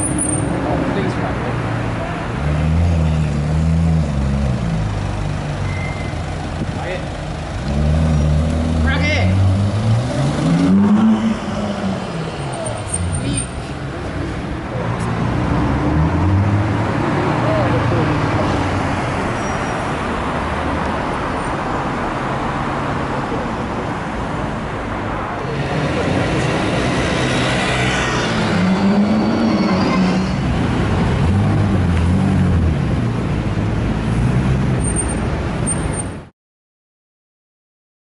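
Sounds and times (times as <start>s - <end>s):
street traffic: 0.0s - 36.3s
scooter passing: 25.5s - 32.0s.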